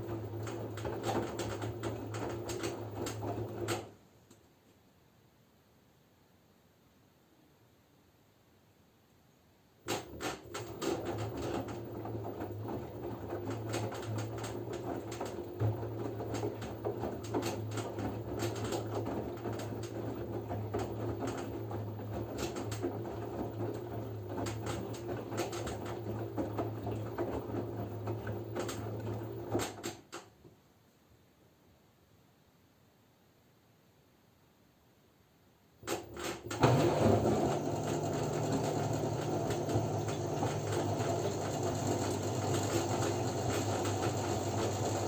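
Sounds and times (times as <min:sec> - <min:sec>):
wet laundry tumbling: 0:00.0 - 0:03.9, 0:10.0 - 0:29.8, 0:36.5 - 0:45.0
washing machine motor hum: 0:00.0 - 0:04.0, 0:09.9 - 0:29.8, 0:35.8 - 0:45.0.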